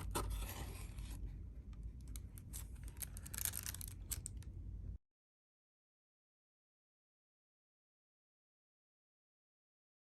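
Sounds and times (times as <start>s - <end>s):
low steady hum: 0.0s - 5.0s.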